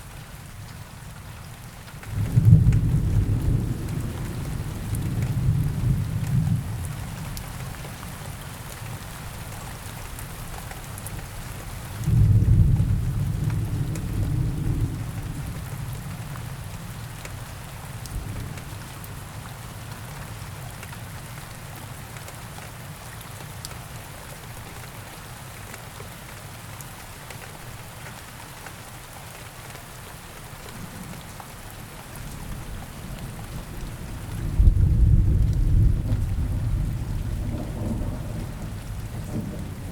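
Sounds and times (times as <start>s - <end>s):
steady rain falling: 0.0s - 39.9s
distant thunder rolling: 33.2s - 39.9s.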